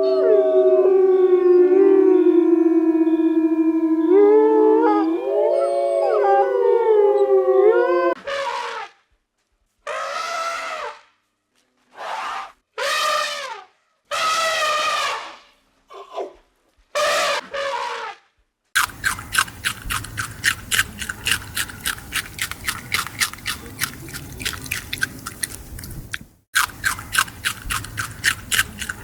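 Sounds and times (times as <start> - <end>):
wolves howling: 0.0 - 8.2.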